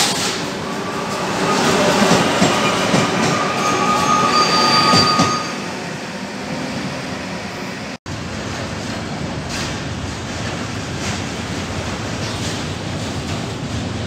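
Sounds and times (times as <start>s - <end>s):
train rumbling: 0.0s - 14.0s
train wheels squealing: 0.6s - 5.8s.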